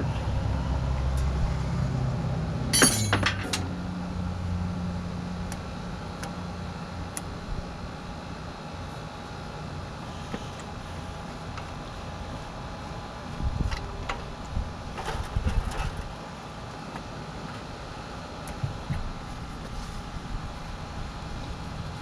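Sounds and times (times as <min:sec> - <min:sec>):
low steady hum: 0:00.0 - 0:22.0
metal parts clattering: 0:02.8 - 0:03.6.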